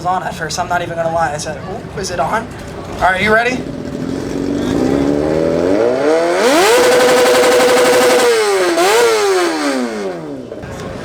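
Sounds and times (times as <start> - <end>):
engine revving through loud exhaust: 3.0 - 10.6.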